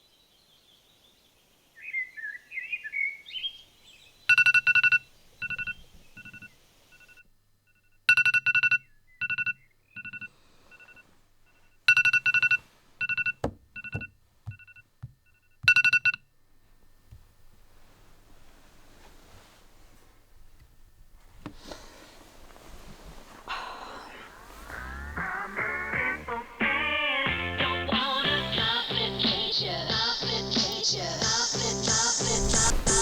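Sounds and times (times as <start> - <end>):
birds chirping: 0.7 - 7.0, 23.4 - 33.0
phone alarm beeping: 4.3 - 16.3, 23.5 - 33.0.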